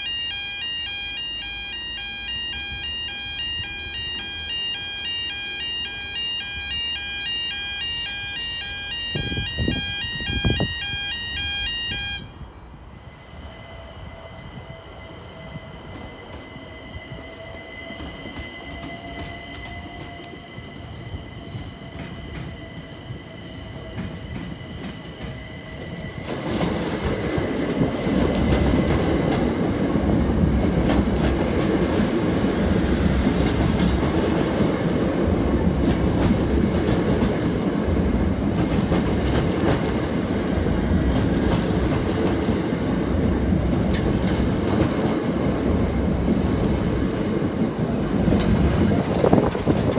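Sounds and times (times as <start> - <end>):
steady high tone: 0.0 - 26.2
train wheels rumbling on rail: 12.6 - 49.9.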